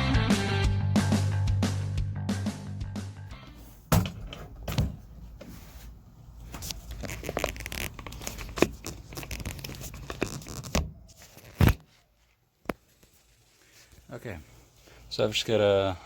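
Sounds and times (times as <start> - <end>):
carpet tearing and crinkling: 6.5 - 11.9.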